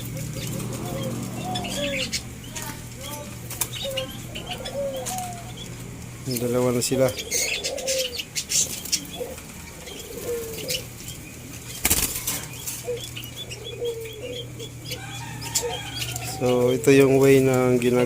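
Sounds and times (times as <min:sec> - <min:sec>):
soft low dove calls: 0:00.0 - 0:05.8, 0:06.4 - 0:17.4
doves flapping wings: 0:02.3 - 0:04.1, 0:08.6 - 0:12.9.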